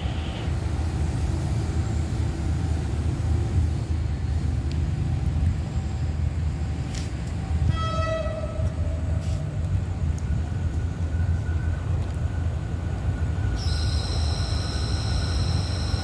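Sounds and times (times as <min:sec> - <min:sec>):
diesel freight train rumble: 0:00.0 - 0:16.0
train horn: 0:07.7 - 0:09.2.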